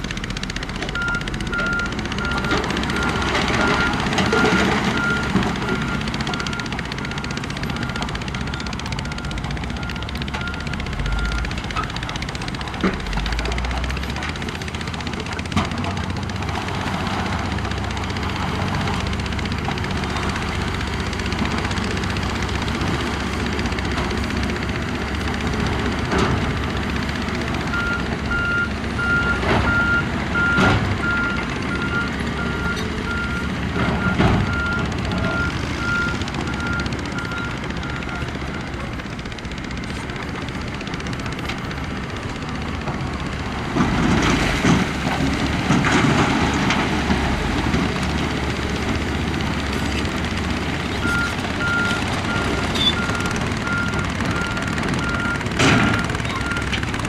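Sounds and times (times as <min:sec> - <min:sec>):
diesel machinery running: 0:00.0 - 0:57.0
reversing alarm beeping: 0:00.9 - 0:11.9, 0:27.7 - 0:38.8, 0:51.0 - 0:57.0.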